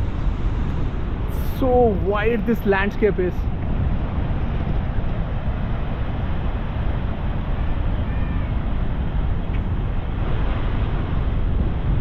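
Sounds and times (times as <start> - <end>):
wind buffeting microphone: 0.0 - 12.0
faint high call: 8.0 - 8.6.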